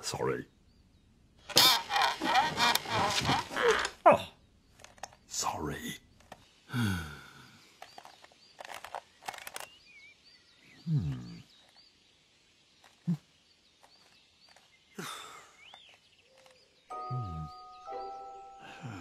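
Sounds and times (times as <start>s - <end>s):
small birds chirping: 0.0s - 19.0s
light clicks: 4.7s - 5.3s, 7.7s - 9.9s, 12.8s - 16.8s.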